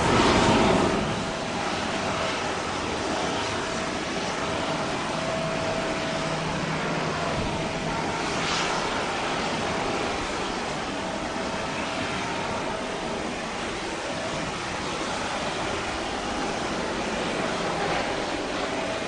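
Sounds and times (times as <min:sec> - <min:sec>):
faint engine whine: 0:00.0 - 0:19.0
jet engines roaring: 0:00.0 - 0:19.0.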